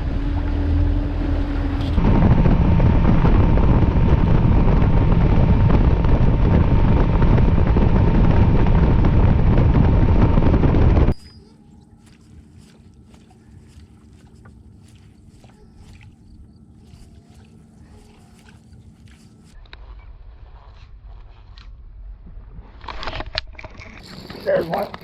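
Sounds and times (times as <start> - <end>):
wind noise on microphone: 0.0 - 11.4
boat motor running: 0.0 - 19.6.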